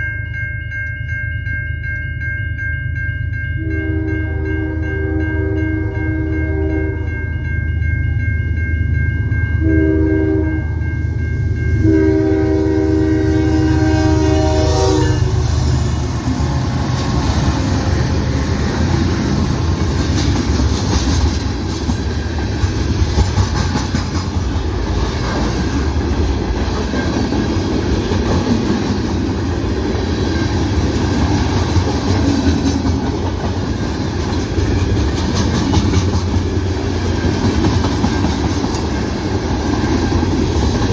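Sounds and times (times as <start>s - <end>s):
diesel locomotives rumbling: 2.9s - 40.9s
train air horn blasts: 3.6s - 7.1s, 9.6s - 10.8s, 11.8s - 18.9s.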